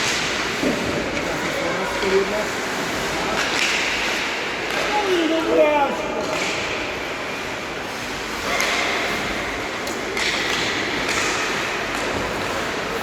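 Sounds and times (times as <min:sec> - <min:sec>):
hockey stick or puck clacks: 0:03.3 - 0:05.0, 0:06.2 - 0:06.9, 0:08.4 - 0:12.7.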